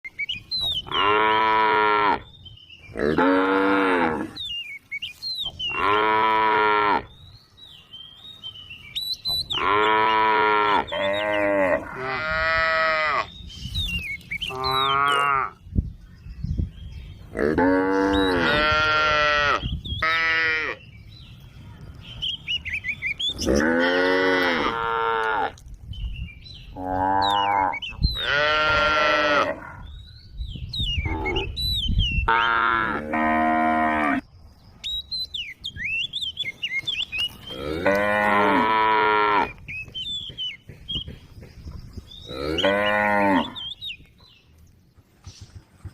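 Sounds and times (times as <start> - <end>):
cattle mooing: 26.8 - 29.7, 42.3 - 43.6.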